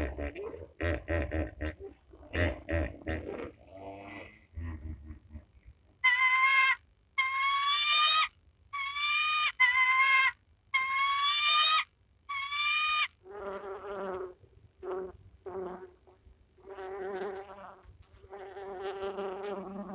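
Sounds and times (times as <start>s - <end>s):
lower buzzy animal call: 0.0s - 15.9s, 16.6s - 19.9s
animal high-pitched calls: 6.0s - 13.2s.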